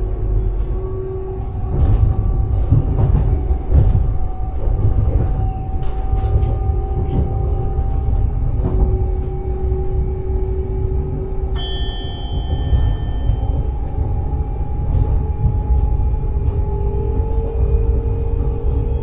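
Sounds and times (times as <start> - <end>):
train rumbling: 0.0 - 19.0
sustained steady tones: 8.3 - 18.4.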